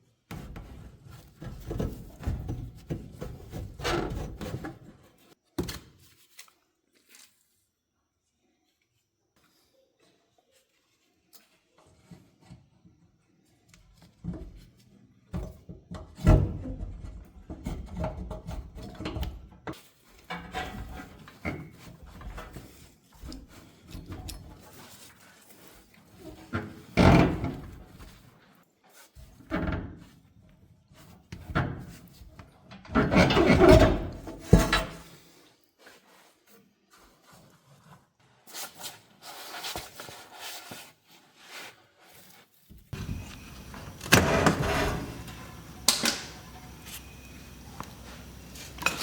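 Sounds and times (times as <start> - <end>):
hard objects knocking and scraping: 43.0 - 49.0.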